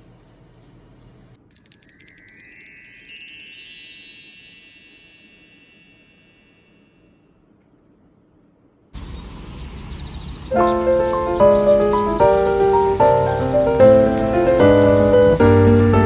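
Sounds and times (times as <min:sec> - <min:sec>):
metal chimes ringing: 0:01.5 - 0:06.8.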